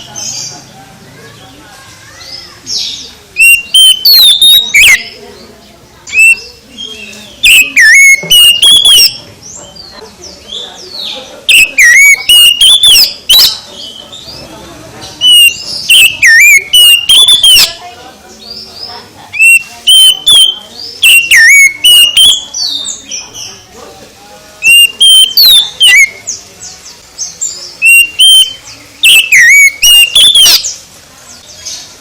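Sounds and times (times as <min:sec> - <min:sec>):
faint bird chirps: 0:00.0 - 0:23.8, 0:24.6 - 0:32.0
bird singing whistled notes: 0:02.2 - 0:05.4, 0:06.1 - 0:09.2, 0:10.5 - 0:14.4, 0:15.2 - 0:18.7, 0:19.3 - 0:23.6, 0:24.6 - 0:30.8.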